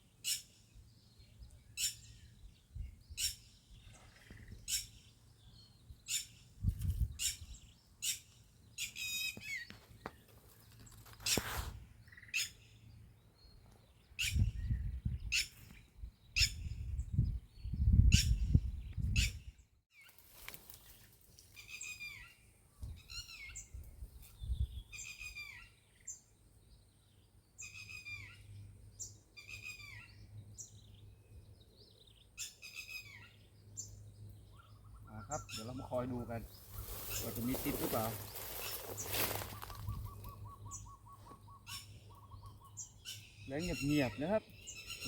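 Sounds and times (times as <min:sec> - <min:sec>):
bird chirping: 0:21.6 - 0:45.0.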